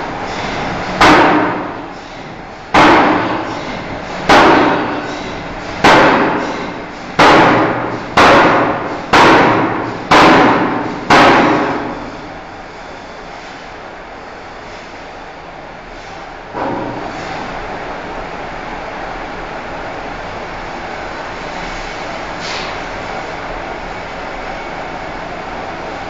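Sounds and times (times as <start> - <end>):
machinery hum: 0.0 - 26.0
forging hammer striking steel: 0.3 - 12.1.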